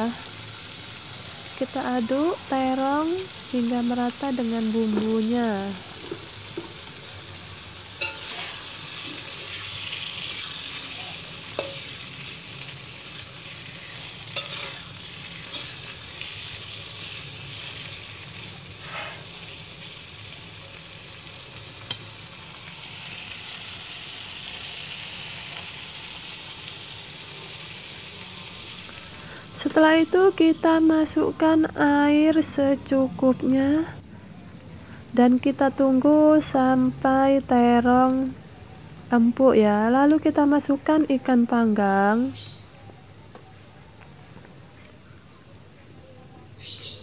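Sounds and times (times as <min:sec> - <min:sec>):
food sizzling in oil: 0:00.0 - 0:33.1
metal spatula scraping pan: 0:08.0 - 0:09.6, 0:13.6 - 0:16.4, 0:18.8 - 0:19.4.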